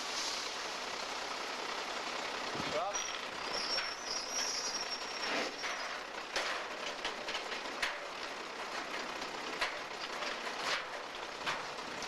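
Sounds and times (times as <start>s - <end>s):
rail cars rolling on track: 0.0s - 12.0s
high thin wheel squeal: 2.8s - 6.1s.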